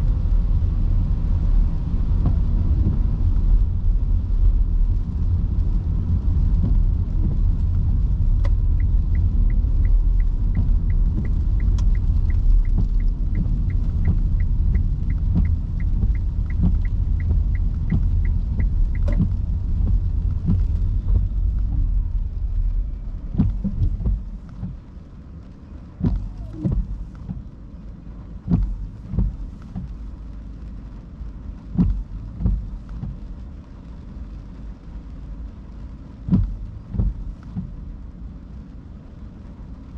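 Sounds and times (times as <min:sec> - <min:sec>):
rain knocking on car body: 0:00.0 - 0:39.9
tyres rumbling on wet road: 0:00.0 - 0:39.9
turn signal ticking: 0:05.6 - 0:34.6, 0:35.4 - 0:37.8.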